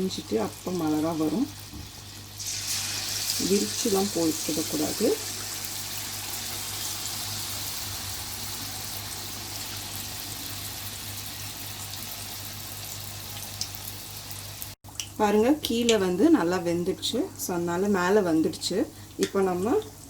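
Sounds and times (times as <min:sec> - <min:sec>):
batter sizzling in hot oil: 0:00.0 - 0:14.8.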